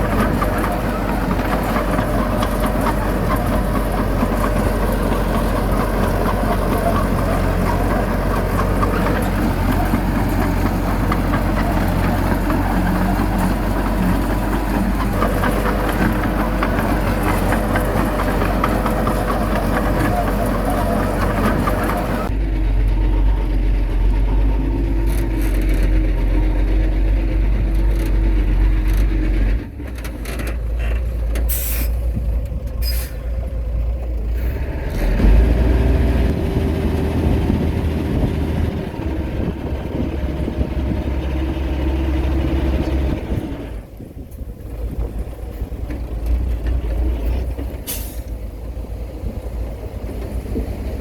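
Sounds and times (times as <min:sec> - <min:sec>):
heavy diesel engine rumbling: 0:00.0 - 0:51.0.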